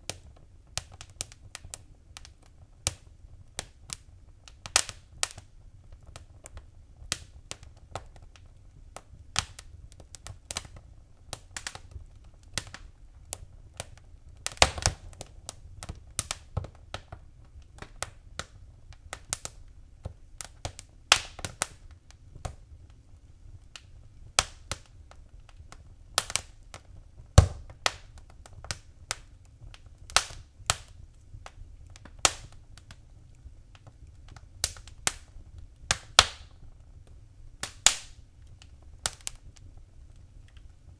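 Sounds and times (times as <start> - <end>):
sharp pops from fire: 0.0 - 40.9
wood fire crackling: 0.0 - 40.9.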